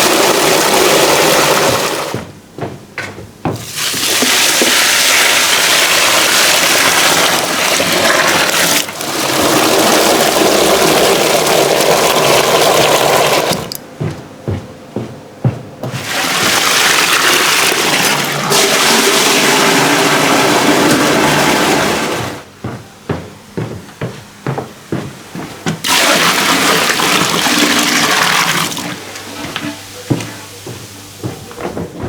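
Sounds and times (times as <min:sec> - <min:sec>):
water gushing: 0:00.0 - 0:02.2, 0:03.6 - 0:13.7, 0:15.9 - 0:22.4, 0:25.8 - 0:29.0.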